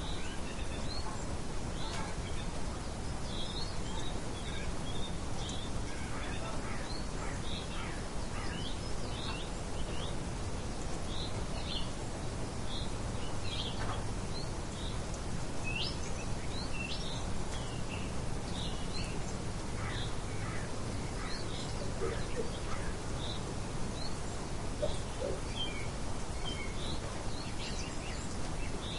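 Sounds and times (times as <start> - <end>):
birds chirping: 0.0 - 28.9
steady background hiss: 0.0 - 28.9.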